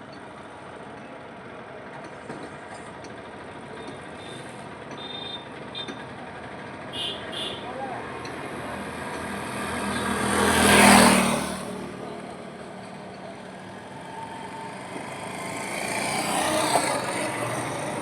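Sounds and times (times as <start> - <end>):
vehicle approaching: 7.8 - 18.0
vehicle passing by: 7.9 - 18.0.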